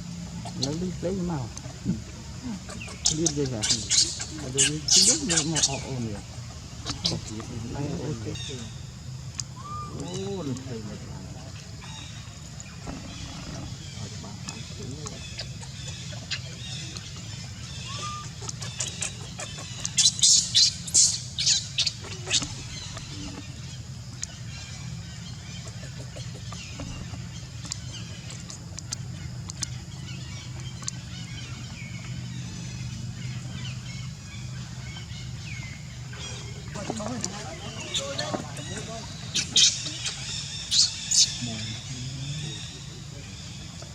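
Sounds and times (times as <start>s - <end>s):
steady low hum: 0.0s - 43.9s
baby monkey squealing: 2.6s - 5.9s, 6.8s - 7.3s, 9.6s - 10.2s, 17.7s - 23.2s, 37.8s - 41.4s.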